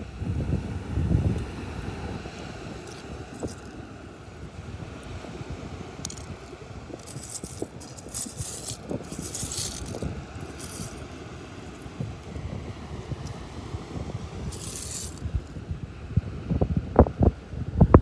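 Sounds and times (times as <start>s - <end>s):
wind rumble on microphone: 0.0s - 18.0s
seashells clinking and rattling: 2.8s - 3.8s, 6.0s - 15.6s.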